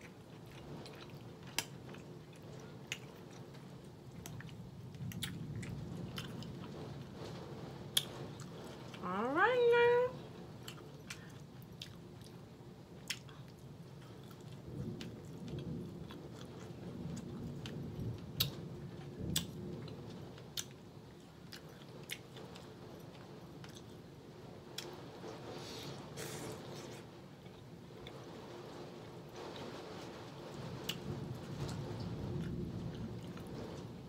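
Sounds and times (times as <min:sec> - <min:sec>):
person chewing food: 0:00.0 - 0:06.6, 0:10.6 - 0:16.8, 0:21.5 - 0:24.0.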